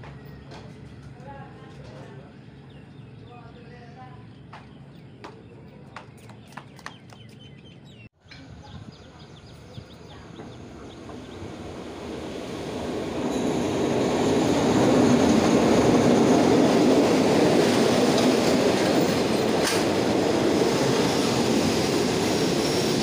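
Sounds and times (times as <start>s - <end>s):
train carriages rolling past: 8.2s - 23.0s.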